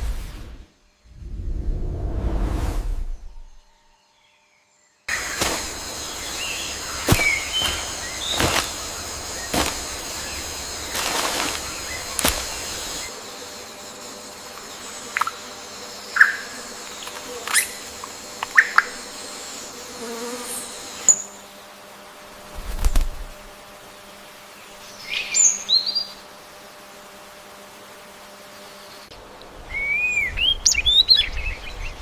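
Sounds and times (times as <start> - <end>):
high-pitched insect drone: 5.1 - 21.6
bird chirps and calls: 29.7 - 32.0.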